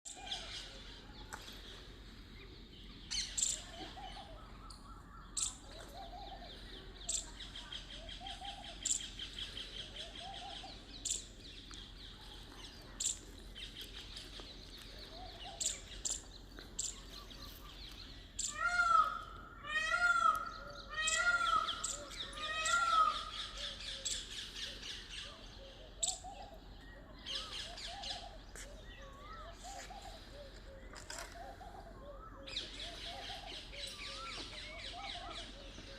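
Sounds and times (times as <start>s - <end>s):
birds chirping: 0.0s - 35.9s
soft low bird calls: 0.1s - 35.9s
high bird trill: 3.0s - 3.7s, 18.3s - 24.3s
loud harsh bird calls: 3.0s - 11.3s, 15.1s - 35.9s.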